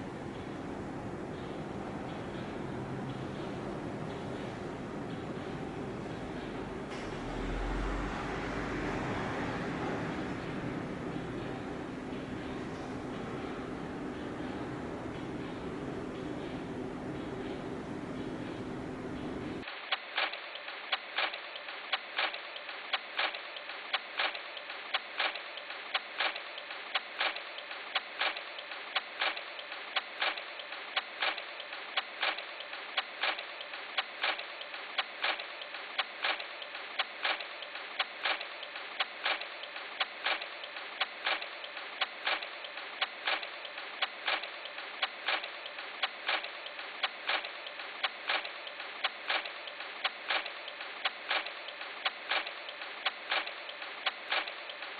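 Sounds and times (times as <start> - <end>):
sharp regular ticks: 19.2 - 54.9.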